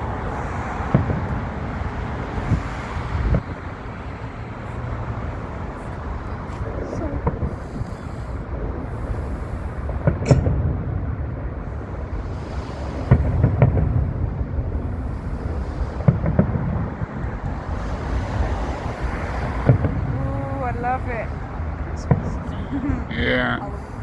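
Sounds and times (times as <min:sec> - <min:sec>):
low rumble of booms: 0:07.2 - 0:24.0
firework shell bursts: 0:10.0 - 0:10.6.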